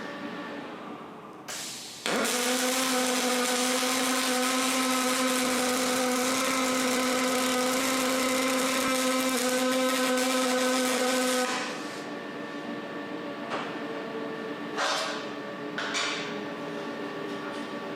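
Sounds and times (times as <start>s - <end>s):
electric power tool running: 2.0s - 12.0s.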